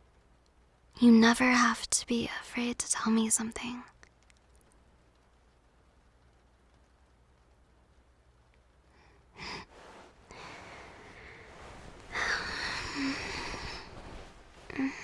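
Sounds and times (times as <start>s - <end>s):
woman breathing: 8.9s - 15.0s
breathy sighing exhale: 9.0s - 14.0s
woman humming: 14.7s - 15.0s.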